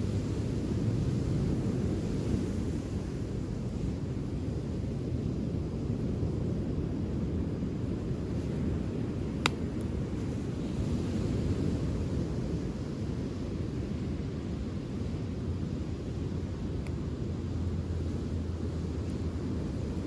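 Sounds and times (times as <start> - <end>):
wind and surf rumble: 0.0 - 20.0
wood fire burning: 3.2 - 10.8.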